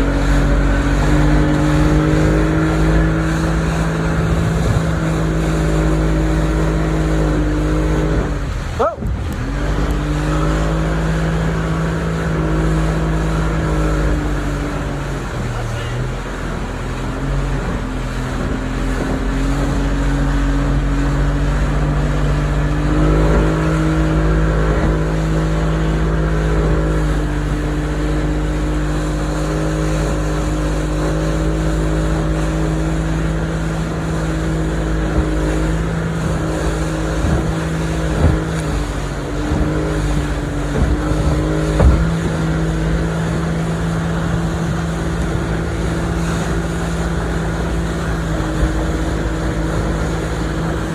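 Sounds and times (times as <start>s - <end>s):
motorboat engine running: 0.0s - 50.9s
short thumps: 34.9s - 43.5s.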